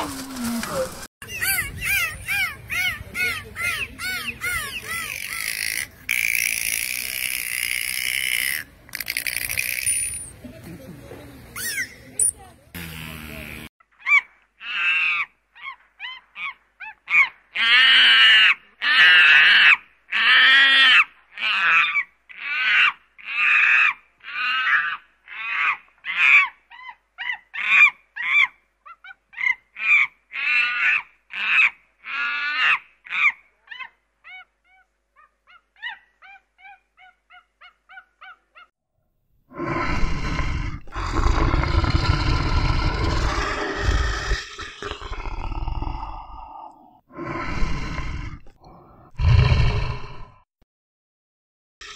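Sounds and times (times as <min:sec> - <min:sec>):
monkey high-pitched calls: 0:01.2 - 0:10.0, 0:11.6 - 0:12.3, 0:14.0 - 0:38.7
lion low rough call: 0:39.5 - 0:50.4.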